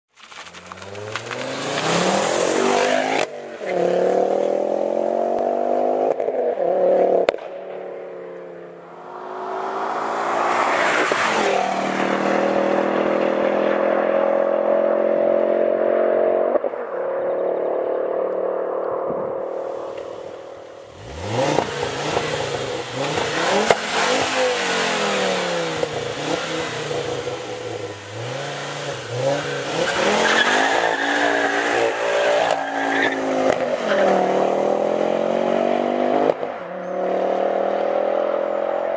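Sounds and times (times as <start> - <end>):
exhaust crackles and pops: 0.1 - 3.4, 7.2 - 7.8, 18.3 - 30.2
turbocharged car engine revving: 20.8 - 38.4.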